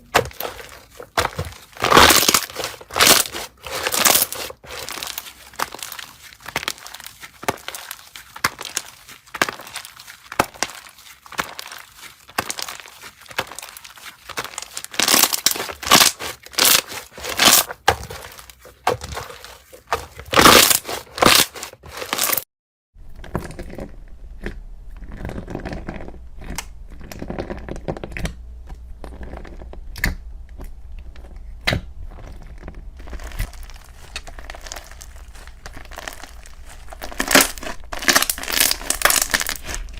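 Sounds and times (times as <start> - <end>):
low steady hum: 23.0 - 39.9
slime crackling and clicking: 29.2 - 39.9.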